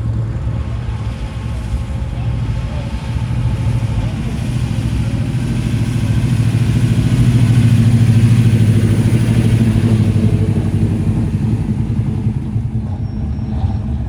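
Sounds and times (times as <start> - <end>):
car engine passing: 0.0 - 13.0.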